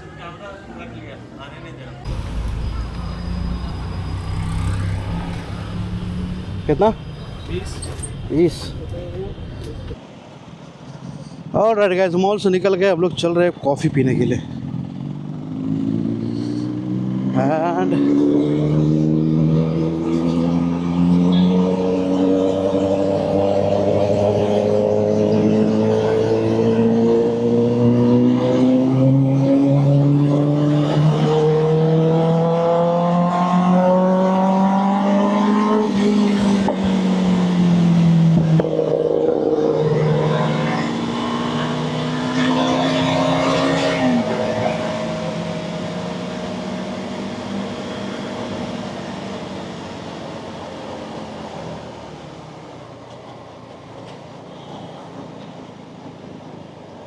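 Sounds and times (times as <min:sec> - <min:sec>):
motorcycle engine accelerating: 0:02.1 - 0:10.0, 0:14.5 - 0:49.6.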